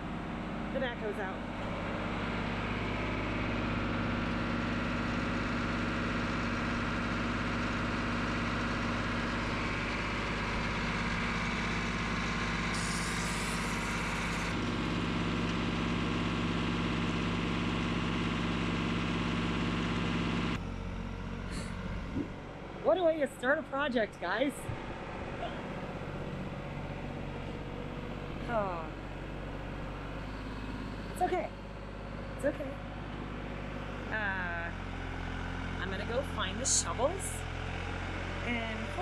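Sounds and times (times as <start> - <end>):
backhoe engine running: 0.0 - 39.0
hiss: 12.7 - 13.8.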